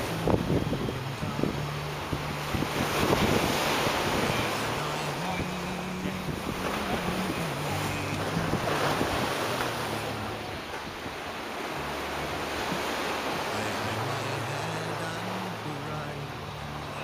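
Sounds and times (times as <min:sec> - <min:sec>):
wind buffeting microphone: 0:00.0 - 0:11.9
low sustained notes: 0:00.0 - 0:17.0.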